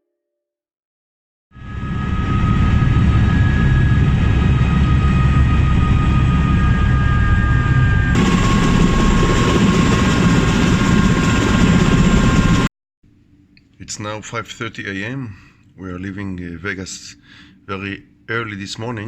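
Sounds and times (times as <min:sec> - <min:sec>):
wind rush: 0:01.7 - 0:12.7.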